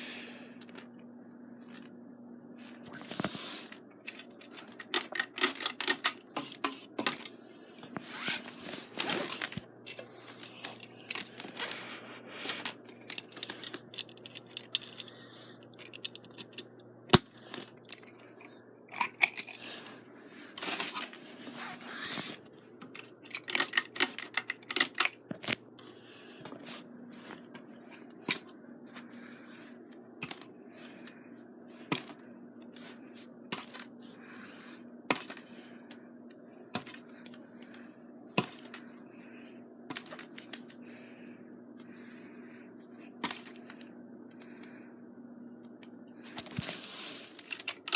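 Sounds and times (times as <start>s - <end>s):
ceiling fan motor humming: 0.0s - 47.9s
irregular clicks and rattles: 2.6s - 8.0s, 8.6s - 11.8s, 12.4s - 20.0s, 22.1s - 34.0s, 47.3s - 47.9s.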